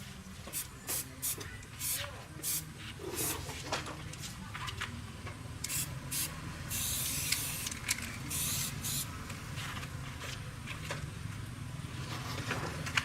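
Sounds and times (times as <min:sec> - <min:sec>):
hissing spray bursts: 0:00.9 - 0:03.4, 0:05.7 - 0:07.7, 0:08.3 - 0:09.1.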